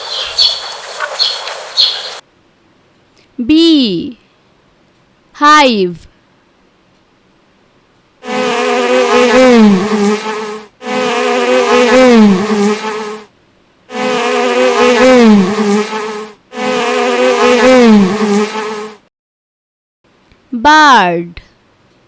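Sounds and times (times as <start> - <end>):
bee buzzing: 8.2 - 13.3, 13.9 - 19.0.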